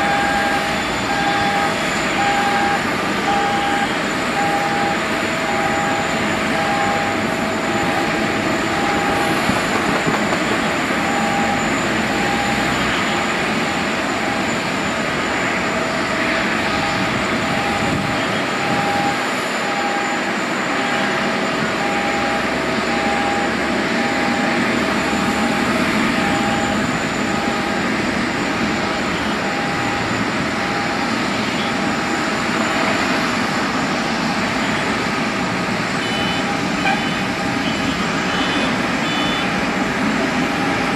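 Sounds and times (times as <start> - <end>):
jet aircraft noise: 0.0 - 40.9
short beeps: 10.4 - 13.3, 21.8 - 27.8, 36.0 - 39.5.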